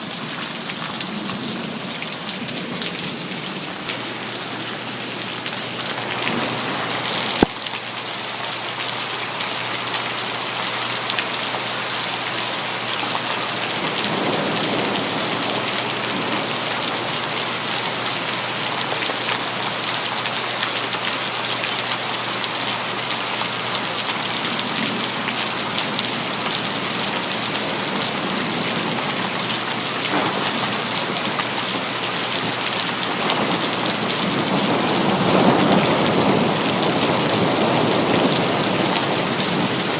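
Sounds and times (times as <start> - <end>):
heavy rainfall: 0.0 - 39.9
thunder rumbling: 0.8 - 7.6, 13.2 - 17.7, 24.6 - 39.9.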